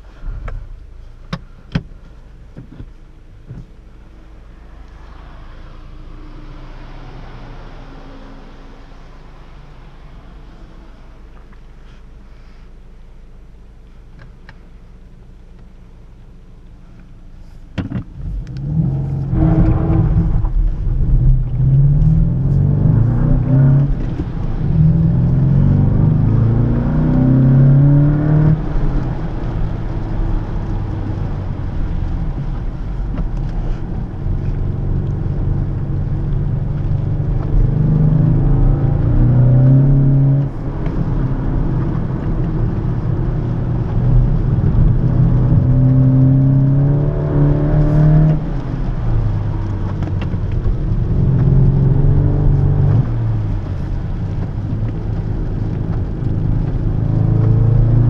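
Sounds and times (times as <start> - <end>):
car engine revving through gears: 17.9 - 58.0.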